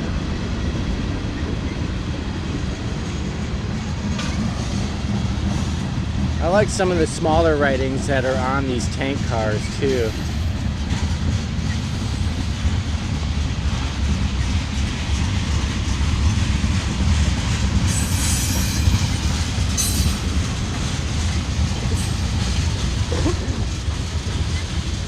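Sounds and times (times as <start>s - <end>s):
train wheels rumbling on rails: 0.0s - 25.0s
high-pitched wheel squeals: 17.9s - 20.3s.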